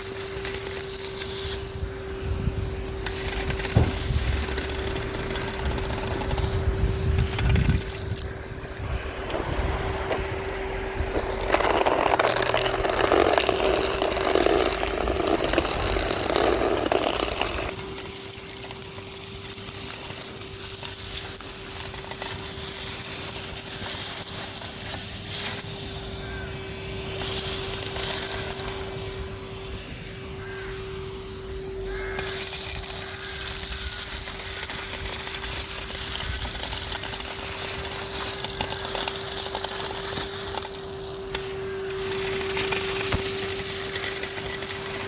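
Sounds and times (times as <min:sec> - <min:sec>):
vacuum cleaner motor whine: 0:00.0 - 0:45.0
debris crunching and rattling: 0:03.0 - 0:25.8, 0:32.2 - 0:45.0.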